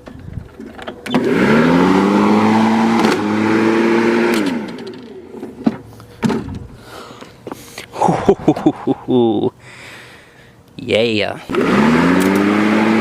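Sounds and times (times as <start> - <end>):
lawnmower running: 0.6 - 5.4, 11.5 - 13.0.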